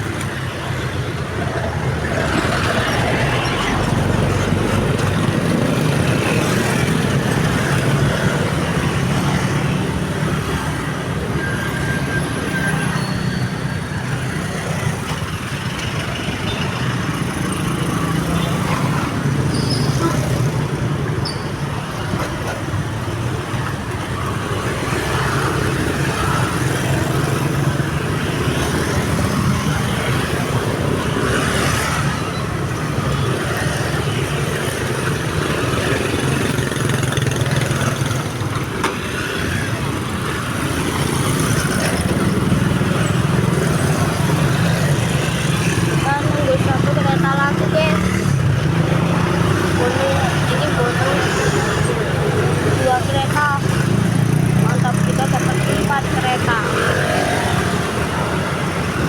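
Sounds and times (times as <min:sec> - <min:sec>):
car engines passing: 0:00.0 - 0:59.0
motorcycle engines passing: 0:00.0 - 0:59.0.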